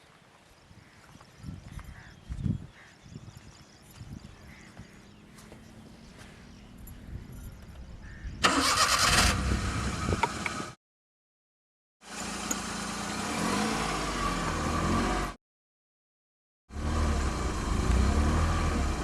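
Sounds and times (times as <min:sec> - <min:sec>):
car engine cranking and starting: 0:08.4 - 0:10.8, 0:16.8 - 0:19.0
car engine running: 0:12.1 - 0:15.3, 0:16.7 - 0:19.0.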